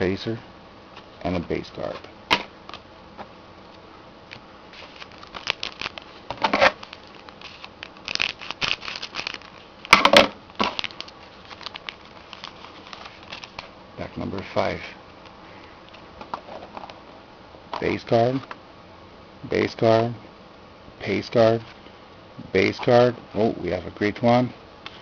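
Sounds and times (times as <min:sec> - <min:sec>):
cards being handled: 0:01.8 - 0:10.0, 0:10.6 - 0:13.7
wrapper crinkling and tearing: 0:04.7 - 0:13.7.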